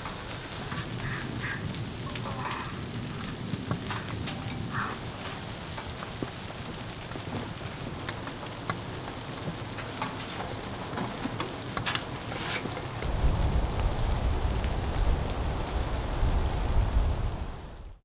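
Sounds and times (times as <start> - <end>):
sharp ticks: 0.0 - 12.2
precipitation pattering: 0.0 - 15.3.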